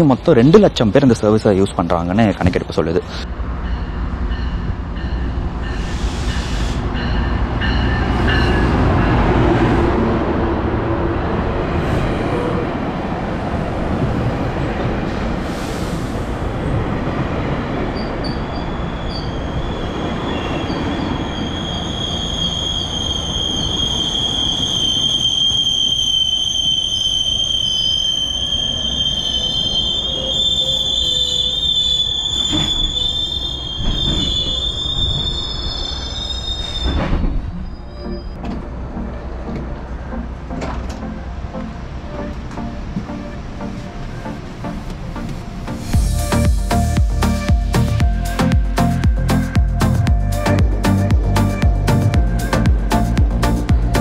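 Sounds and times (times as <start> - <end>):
train coaches rolling by: 0.0 - 54.0
high wheel squeal: 17.9 - 38.4
locomotive deep rumble: 36.9 - 54.0.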